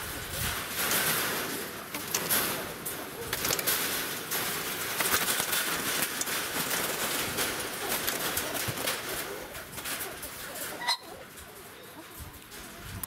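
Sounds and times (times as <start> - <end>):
birds calling: 7.6 - 12.5.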